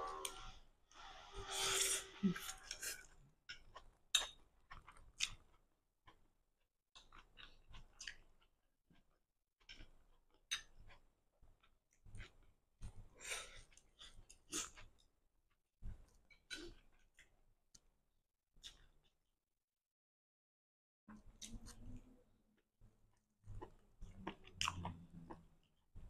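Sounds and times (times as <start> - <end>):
person slurping noodles: 1.0 - 3.1
wet chewing and smacks: 2.7 - 6.3, 7.0 - 15.1, 22.6 - 26.0.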